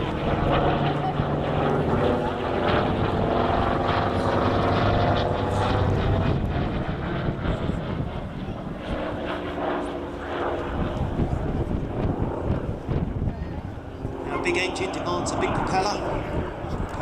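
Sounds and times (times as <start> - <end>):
propeller plane flying past: 0.0 - 17.0.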